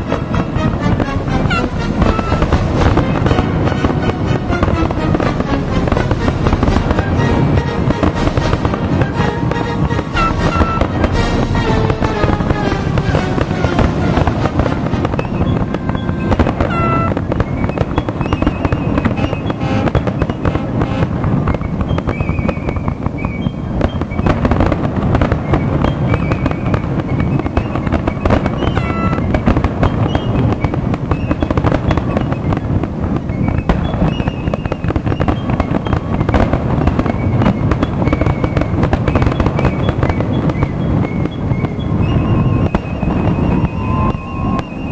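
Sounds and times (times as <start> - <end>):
fireworks bangs and crackle: 0.0 - 44.9
high whistling fireworks: 0.0 - 44.9.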